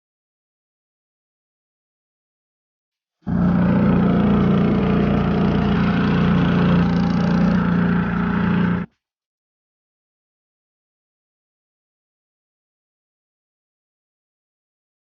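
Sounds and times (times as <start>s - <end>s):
motorboat engine running: 3.3s - 8.9s.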